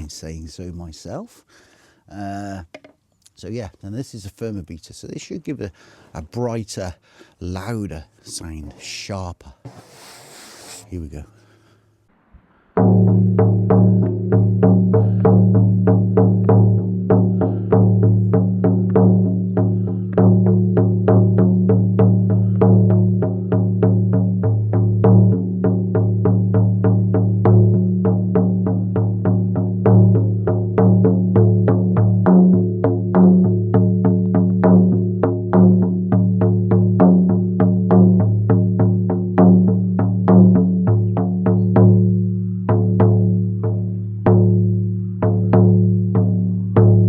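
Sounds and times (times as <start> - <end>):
frame drum beaten: 12.7 - 47.0.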